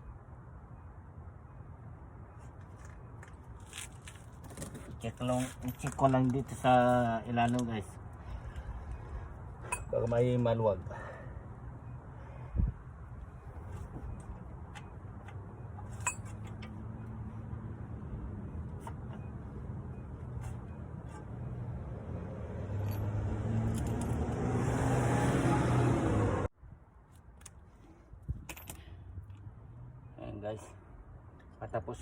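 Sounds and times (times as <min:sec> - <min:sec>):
vehicle engine humming: 0:08.0 - 0:26.5.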